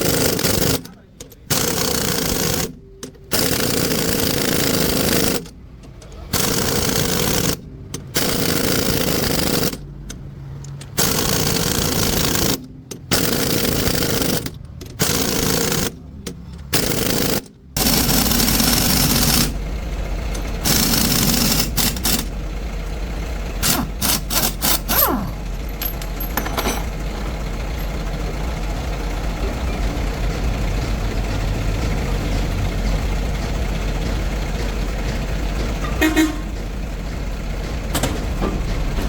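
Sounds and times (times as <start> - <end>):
rattling power tool bursts: 0.0 - 5.6, 6.3 - 9.9, 10.9 - 16.0, 16.7 - 19.6, 20.5 - 22.4, 23.5 - 27.2
truck engine idling: 0.0 - 39.0.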